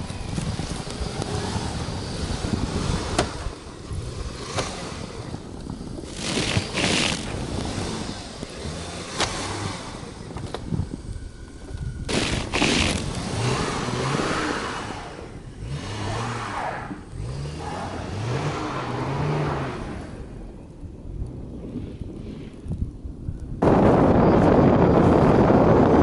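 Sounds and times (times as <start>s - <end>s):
vehicle engine revving: 0.0s - 11.4s, 12.0s - 20.5s
gusting wind: 0.0s - 26.0s
traffic: 0.0s - 26.0s.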